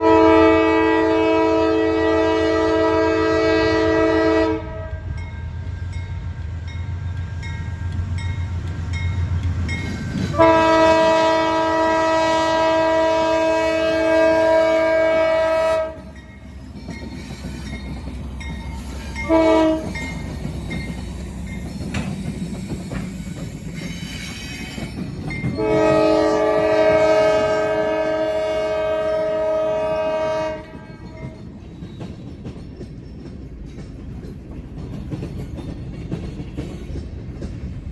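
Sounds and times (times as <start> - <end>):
locomotive air horn blasts: 0.0 - 5.1, 10.3 - 16.1, 19.2 - 20.0, 25.5 - 31.3
low train rumble: 0.0 - 37.9.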